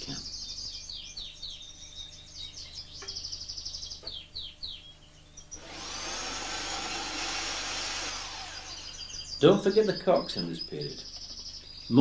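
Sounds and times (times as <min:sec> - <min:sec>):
canaries chirping and trilling: 0:00.0 - 0:12.0
whirring rushing noise: 0:05.6 - 0:09.0.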